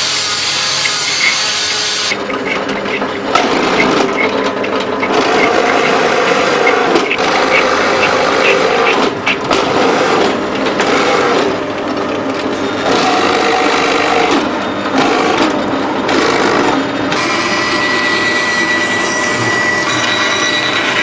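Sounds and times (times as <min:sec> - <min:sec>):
high-pitched tool whine: 0:00.0 - 0:04.4, 0:16.5 - 0:21.0
sawing and rasping wood: 0:00.0 - 0:04.4, 0:05.0 - 0:10.2.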